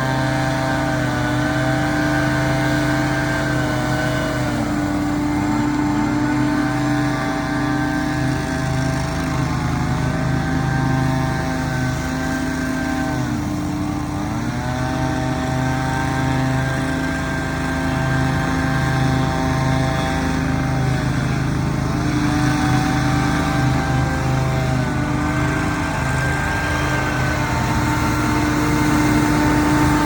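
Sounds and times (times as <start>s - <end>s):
leaf blower running steadily: 0.0s - 30.0s
leaf blower engine pitch dropping: 17.8s - 30.0s.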